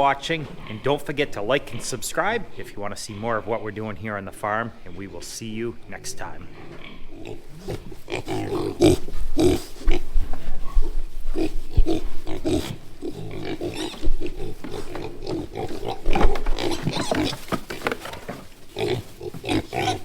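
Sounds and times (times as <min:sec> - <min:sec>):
pigs grunting and squealing: 0:00.0 - 0:20.0.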